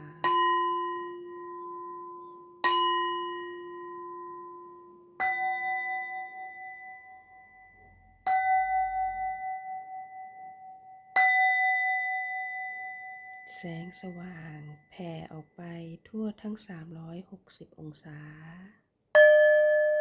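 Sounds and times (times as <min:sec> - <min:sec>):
meditation bells ringing: 0:00.0 - 0:14.9, 0:19.2 - 0:20.0.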